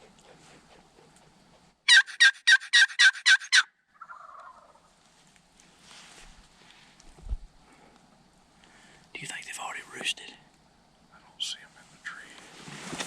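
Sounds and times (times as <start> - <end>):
turkey gobbling: 1.9 - 4.9.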